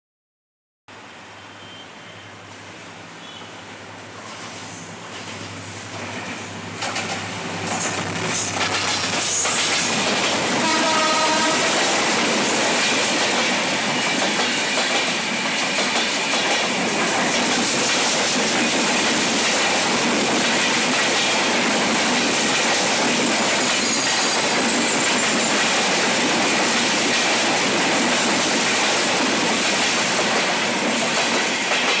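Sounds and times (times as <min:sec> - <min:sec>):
train wheels rumbling on rails: 0:02.4 - 0:32.0
train horn blast: 0:10.5 - 0:11.9.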